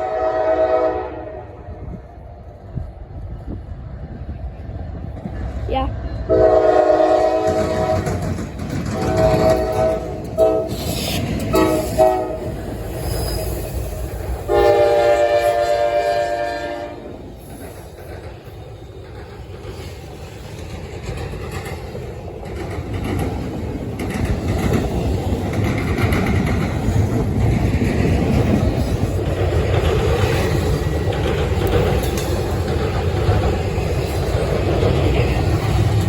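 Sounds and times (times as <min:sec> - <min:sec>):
locomotive air horn blasts: 0:00.0 - 0:01.6, 0:06.3 - 0:08.1, 0:09.0 - 0:10.9, 0:11.5 - 0:12.5, 0:14.5 - 0:17.1
train rumble and wheel clatter: 0:00.0 - 0:36.0.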